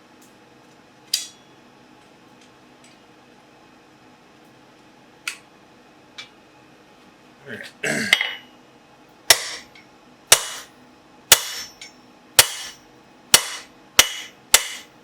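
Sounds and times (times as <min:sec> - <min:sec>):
hammer blows on hot steel: 0:10.3 - 0:10.7, 0:11.3 - 0:12.8, 0:13.4 - 0:14.9.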